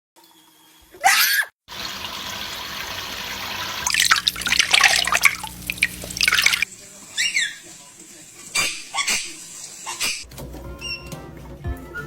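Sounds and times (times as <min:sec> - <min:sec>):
parrot splashing in water: 0:01.7 - 0:07.6
water running from a tap: 0:01.7 - 0:10.2.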